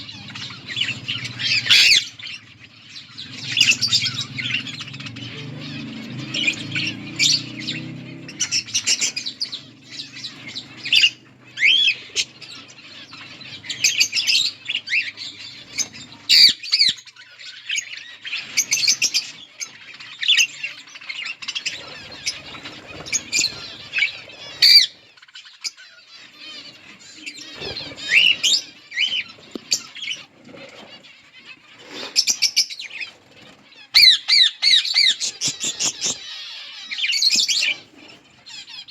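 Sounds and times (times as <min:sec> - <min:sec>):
budgerigars chirping: 0:00.0 - 0:38.9
wings flapping: 0:21.4 - 0:24.9, 0:27.2 - 0:33.9, 0:35.0 - 0:36.6.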